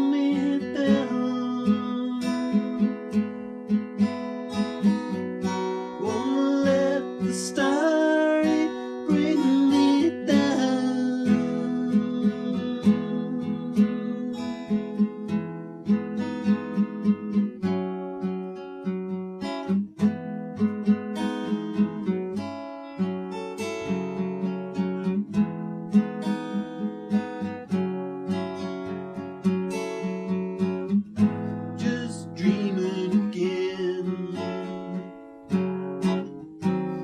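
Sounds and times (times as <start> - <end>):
person singing: 0.0 - 2.9, 5.5 - 15.3, 31.7 - 35.0
acoustic guitar strumming: 0.0 - 37.0.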